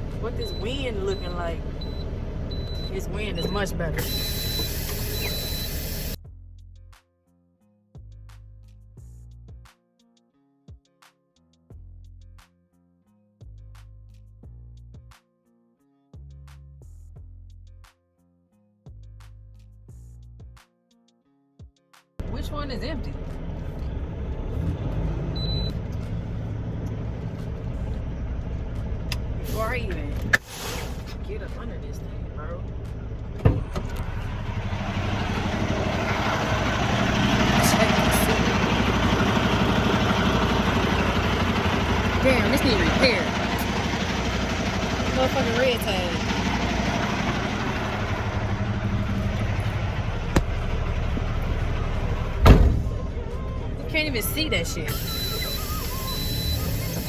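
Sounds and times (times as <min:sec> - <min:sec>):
truck diesel engine rumbling: 0:00.0 - 0:06.2, 0:22.2 - 0:57.0
high beep: 0:00.4 - 0:06.2, 0:25.4 - 0:25.7, 0:54.6 - 0:57.0
loud thump: 0:33.4 - 0:33.9, 0:50.3 - 0:50.6, 0:52.4 - 0:53.0.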